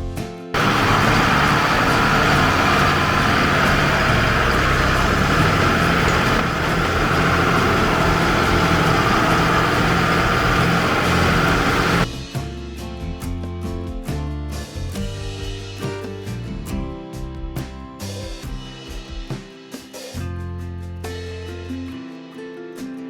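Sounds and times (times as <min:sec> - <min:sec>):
tractor engine running: 0:00.6 - 0:12.1.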